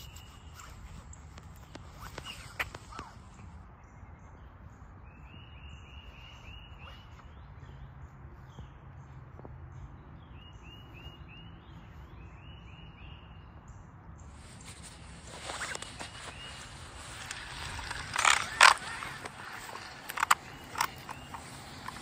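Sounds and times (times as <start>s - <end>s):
bird singing repeated notes: 0.0s - 8.8s, 15.1s - 22.0s.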